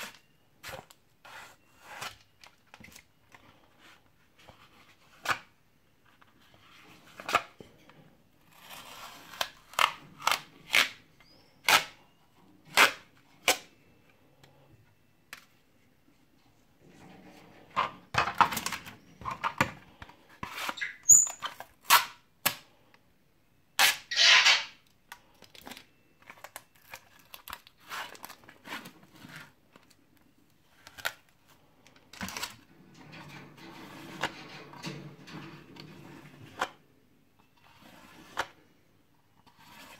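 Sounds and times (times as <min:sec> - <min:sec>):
tape rubbing: 0:23.8 - 0:24.8.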